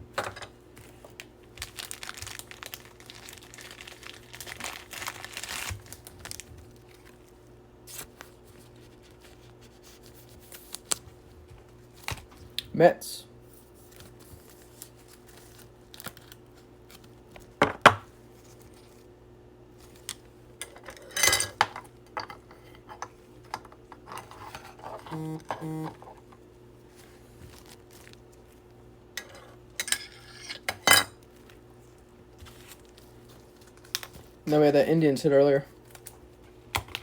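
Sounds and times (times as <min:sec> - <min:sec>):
short buzzy tones: 0:25.1 - 0:26.0.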